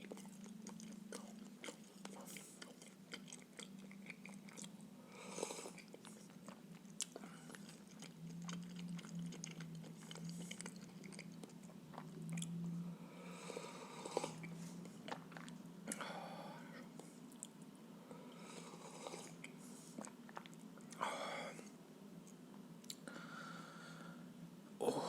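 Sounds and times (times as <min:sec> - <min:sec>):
close chewing and biting: 0:00.0 - 0:04.8, 0:05.8 - 0:12.6, 0:14.2 - 0:16.0, 0:19.2 - 0:21.0
low steady hum: 0:00.0 - 0:25.0.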